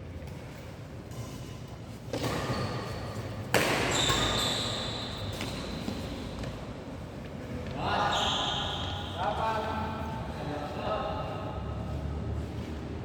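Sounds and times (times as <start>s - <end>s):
shoes squeaking on court floor: 1.1s - 6.6s, 7.6s - 9.2s
racket hitting shuttlecock: 3.4s - 4.3s.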